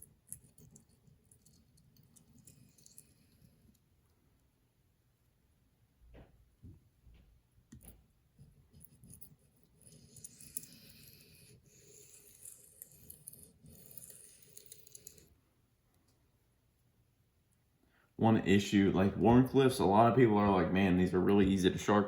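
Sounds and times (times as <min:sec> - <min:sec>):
knife scraping on sharpening stone: 0:09.1 - 0:15.3.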